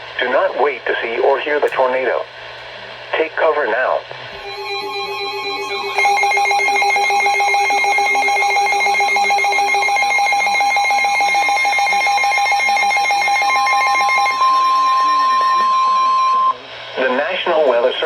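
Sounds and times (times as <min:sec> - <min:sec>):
steady low alert tone: 0:04.3 - 0:17.2
rapidly pulsing high beep: 0:04.4 - 0:16.7.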